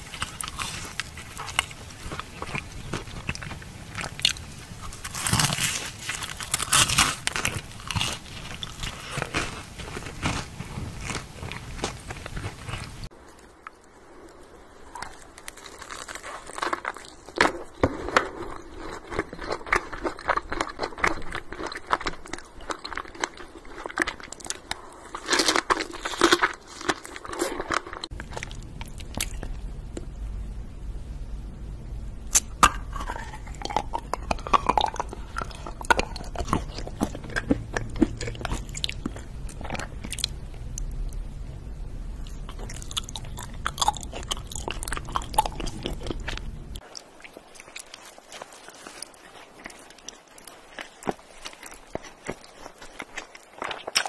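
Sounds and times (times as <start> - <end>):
crunchy biting of candies: 0.0 - 13.1, 14.8 - 29.6, 32.3 - 41.2, 42.2 - 54.0
sticky chewing of chocolates: 0.0 - 29.6, 32.3 - 41.2, 42.2 - 54.0
faint low hum: 0.0 - 54.0.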